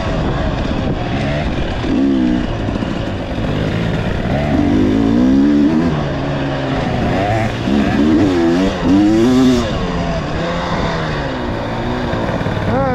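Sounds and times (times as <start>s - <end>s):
vehicle engine revving: 0.0s - 12.9s.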